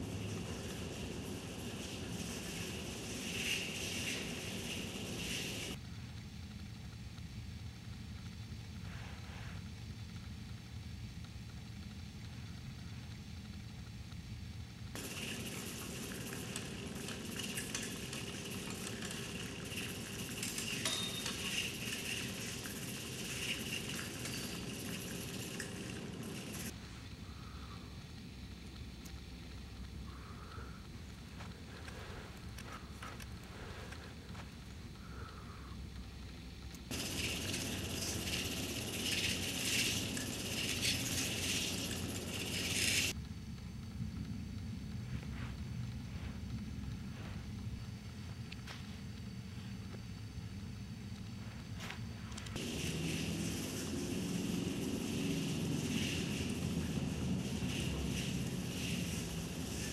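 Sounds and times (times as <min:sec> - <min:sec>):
dried flower stalks rustling: 0:00.0 - 0:05.8, 0:28.6 - 0:43.1, 0:51.3 - 0:59.9.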